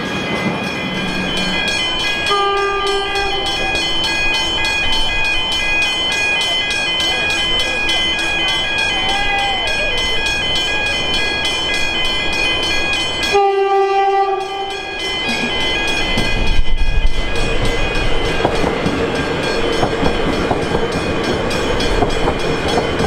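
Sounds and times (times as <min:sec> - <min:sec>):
level-crossing bells ringing: 0:00.0 - 0:23.0
train rumbling past: 0:00.0 - 0:23.0
train horn blast: 0:02.3 - 0:03.6, 0:13.2 - 0:14.8.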